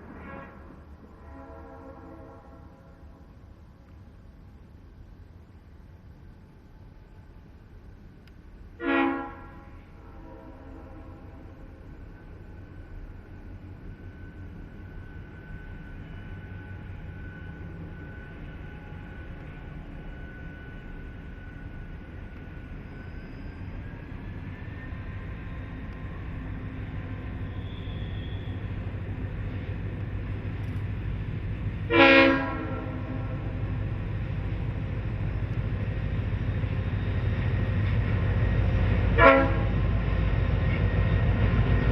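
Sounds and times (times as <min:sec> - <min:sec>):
locomotive horn blast: 0:00.1 - 0:03.2, 0:08.8 - 0:11.6, 0:31.9 - 0:33.6, 0:39.1 - 0:39.8
locomotive engine rumble: 0:09.4 - 0:41.9.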